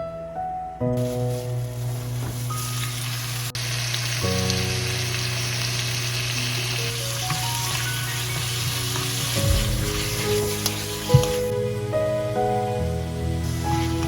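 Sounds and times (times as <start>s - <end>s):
food sizzling in hot oil: 1.0s - 11.5s.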